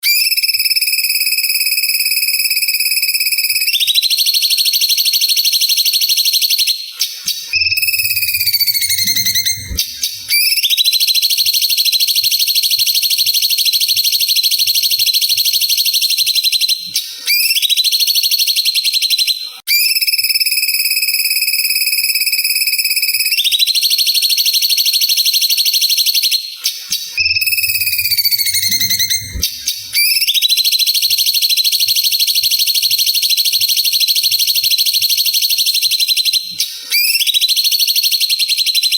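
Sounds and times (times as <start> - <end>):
bird singing fast trill: 26.6 - 30.6.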